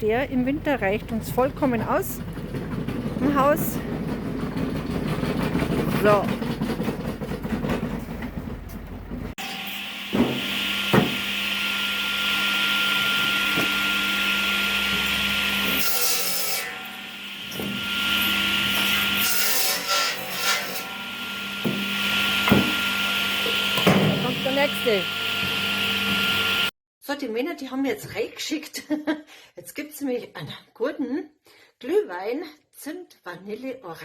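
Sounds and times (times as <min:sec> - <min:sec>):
saw cutting firewood: 0:01.6 - 0:08.2, 0:09.4 - 0:26.7
wood knocks: 0:10.2 - 0:11.2, 0:22.4 - 0:22.8.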